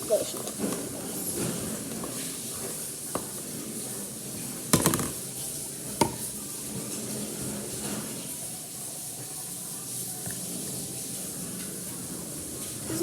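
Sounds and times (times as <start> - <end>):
knock on counter: 4.7 - 5.2, 6.0 - 6.3.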